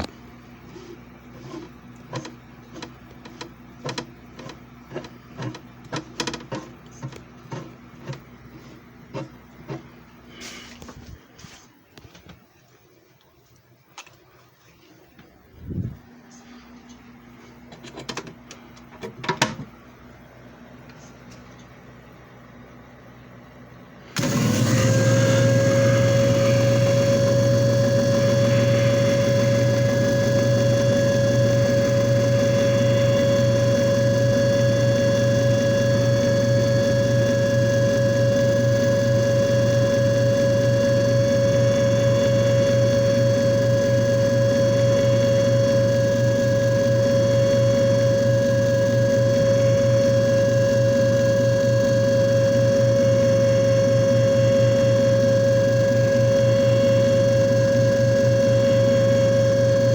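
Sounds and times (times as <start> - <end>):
machine motor hum: 24.0 - 59.9.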